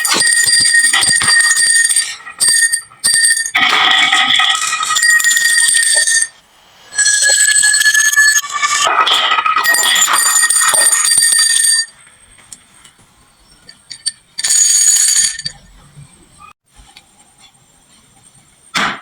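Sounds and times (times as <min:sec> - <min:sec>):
marbles rattling along a run: 0:00.0 - 0:06.3, 0:06.9 - 0:11.9
bell-like ringing tones: 0:00.0 - 0:12.7, 0:13.4 - 0:16.5.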